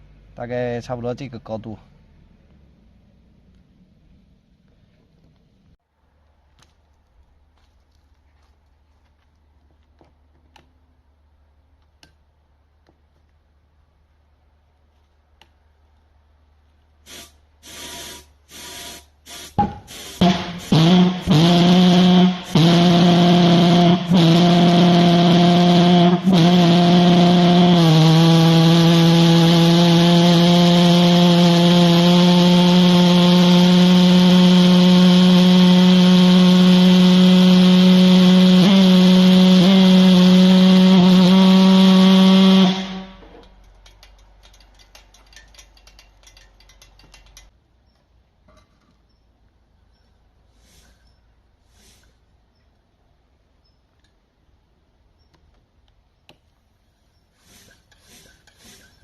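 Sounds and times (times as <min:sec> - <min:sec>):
pulse jet engine buzzing: 0:17.1 - 0:43.3
fast irregular clicking: 0:43.4 - 0:47.6.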